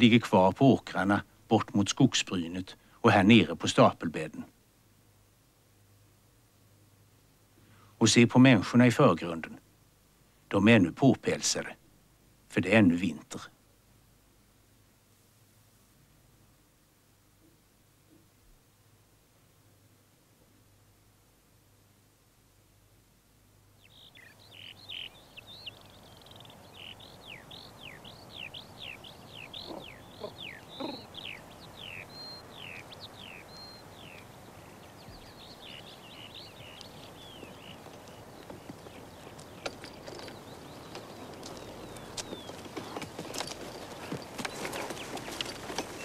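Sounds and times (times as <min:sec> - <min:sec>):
background hiss: 0:00.0 - 0:46.0
other birds calling: 0:23.8 - 0:46.0.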